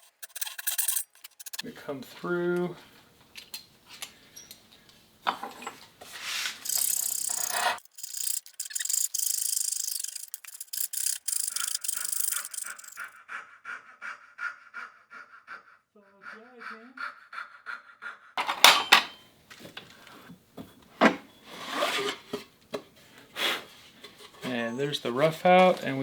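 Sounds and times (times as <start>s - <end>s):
hand saw cutting wood: 6.0s - 8.2s, 21.6s - 22.3s.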